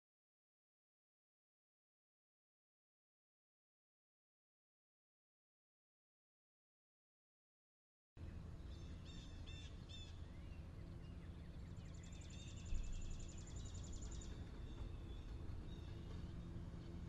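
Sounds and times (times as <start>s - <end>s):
birds chirping: 8.2s - 17.0s.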